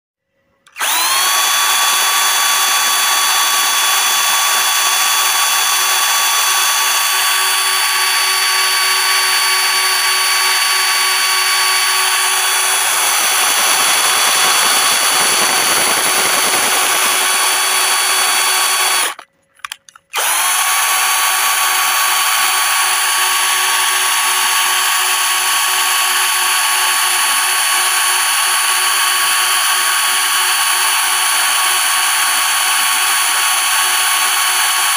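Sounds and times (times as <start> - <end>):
electric drill whining: 0.7 - 19.3, 20.1 - 34.9.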